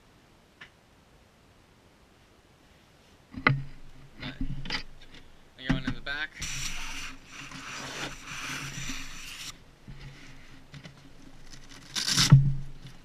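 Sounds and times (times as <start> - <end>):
fabric rustling and scraping: 6.4 - 13.0.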